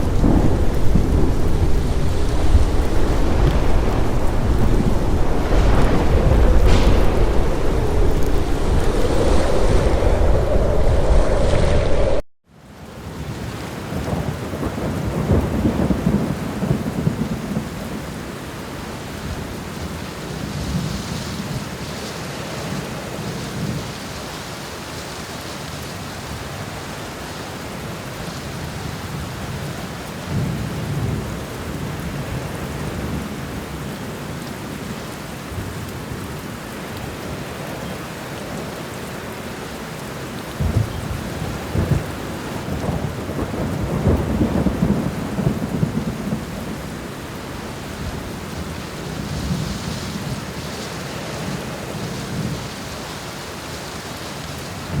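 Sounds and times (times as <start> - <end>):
thunder crack: 0.0 - 12.2, 40.6 - 47.0
thunder rumbling: 0.0 - 12.2, 40.3 - 52.8
heavy rain: 0.0 - 55.0.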